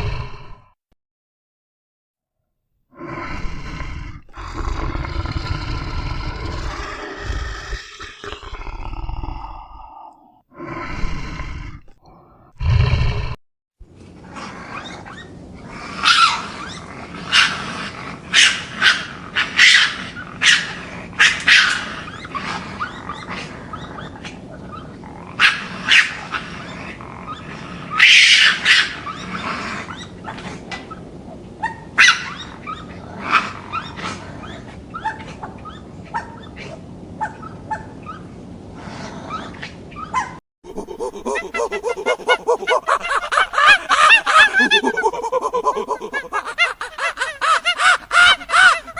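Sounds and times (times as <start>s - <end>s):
dog barking: 18.3s - 21.9s, 32.0s - 32.4s.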